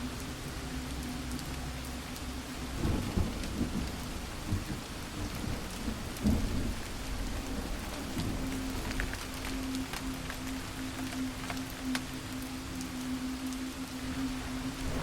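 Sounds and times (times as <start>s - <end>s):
rain falling: 0.0s - 15.0s
thunder rumbling: 2.8s - 11.4s, 14.0s - 15.0s.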